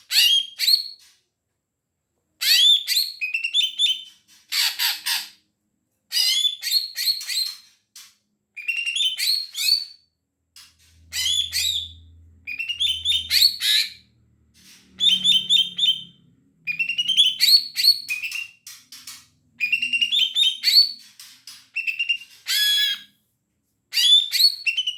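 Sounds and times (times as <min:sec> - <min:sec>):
bird whistling song: 0:00.1 - 0:01.0, 0:02.4 - 0:05.2, 0:06.1 - 0:07.6, 0:08.6 - 0:10.0, 0:11.1 - 0:14.0, 0:14.9 - 0:21.1, 0:21.7 - 0:23.1, 0:23.9 - 0:24.9.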